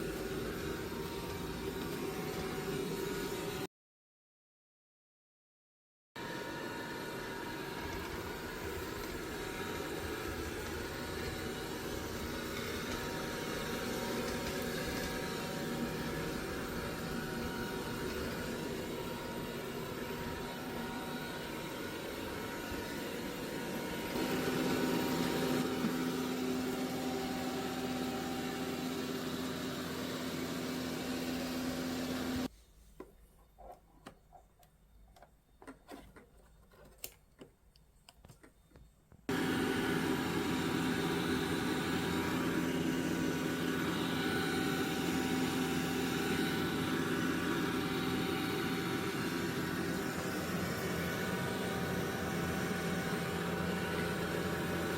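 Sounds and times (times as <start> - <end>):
robot vacuum motor humming: 6.2 - 32.5, 39.3 - 54.9.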